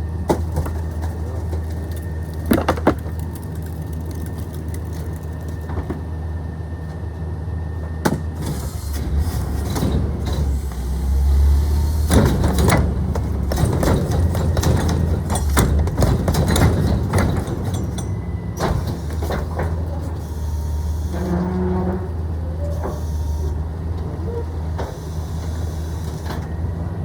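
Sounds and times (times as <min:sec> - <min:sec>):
garbage truck engine running: 0:00.0 - 0:27.0
metal clanks and clattering: 0:02.4 - 0:03.4.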